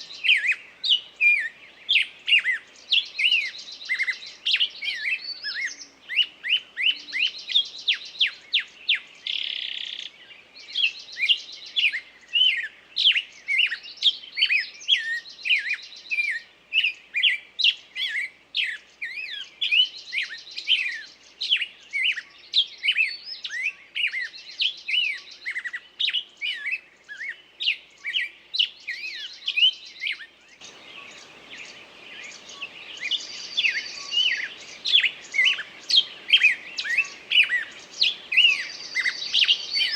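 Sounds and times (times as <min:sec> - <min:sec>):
low background hiss: 0:00.0 - 0:39.9
songbird singing: 0:00.0 - 0:39.9.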